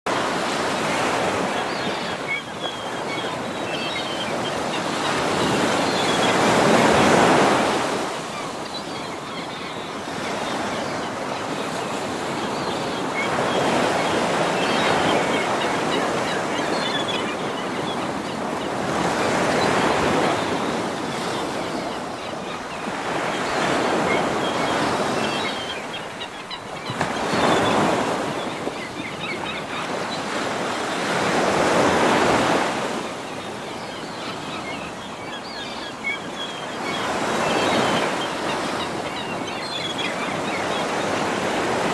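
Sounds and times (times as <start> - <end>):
sea waves breaking on shore: 0.1 - 41.9.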